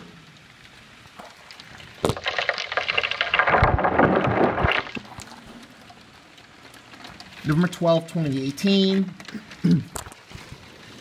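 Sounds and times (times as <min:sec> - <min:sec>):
heavy rain: 0:00.1 - 0:07.5.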